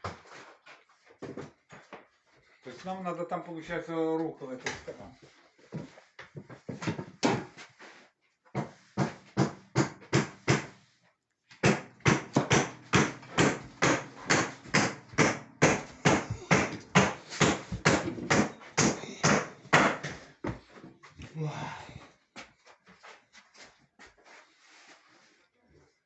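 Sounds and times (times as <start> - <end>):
sharp knocks on hard surface: 11.6 - 20.6.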